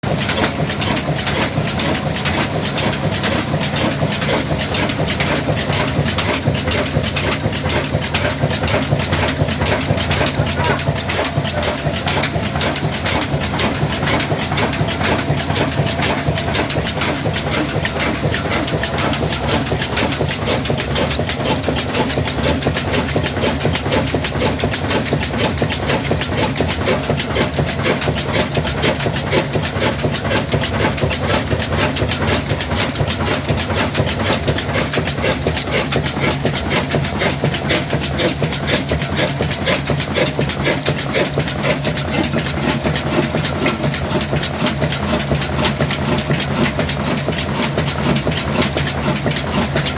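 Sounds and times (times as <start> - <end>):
diesel engine running: 0.0 - 49.9
sharp engine knocks: 0.0 - 49.9.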